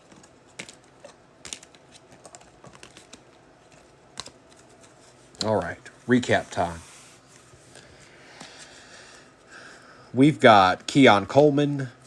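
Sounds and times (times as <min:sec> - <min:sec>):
trading cards clicking on table: 0:00.0 - 0:04.6.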